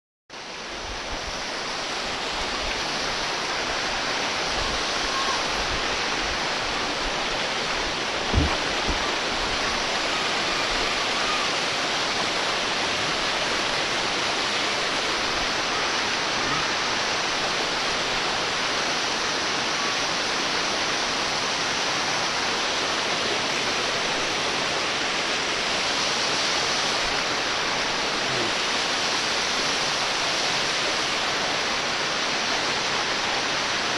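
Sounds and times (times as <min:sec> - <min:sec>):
waterfall pouring: 0:01.5 - 0:33.9
low thump: 0:08.2 - 0:09.1.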